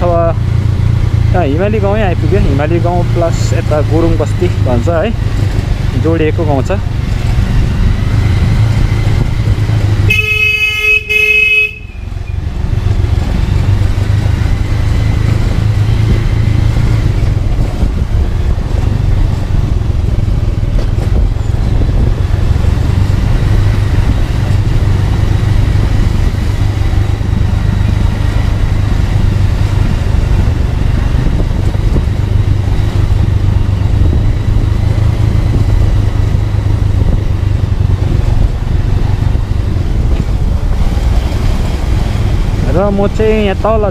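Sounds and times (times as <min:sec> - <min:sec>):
motorcycle engine: 0:00.0 - 0:43.9
wind rumble: 0:00.0 - 0:43.9
vehicle horn: 0:10.0 - 0:12.2.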